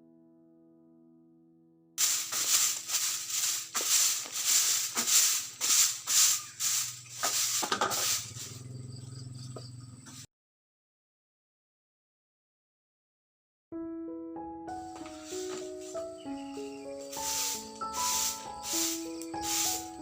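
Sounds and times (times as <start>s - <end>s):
broom strokes swishing: 2.0s - 8.7s, 15.0s - 20.0s.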